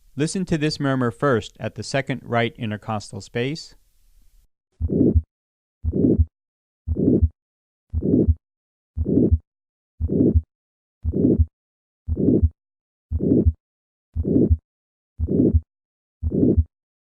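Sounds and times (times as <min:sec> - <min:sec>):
heart sounds: 0:04.8 - 0:06.3, 0:06.9 - 0:08.4, 0:09.0 - 0:09.4, 0:10.0 - 0:11.5, 0:12.1 - 0:13.6, 0:14.2 - 0:14.6, 0:15.2 - 0:16.7
systolic heart murmur: 0:04.8 - 0:06.3, 0:06.9 - 0:08.4, 0:09.0 - 0:09.4, 0:10.0 - 0:11.5, 0:12.1 - 0:13.6, 0:14.2 - 0:14.6, 0:15.2 - 0:16.7.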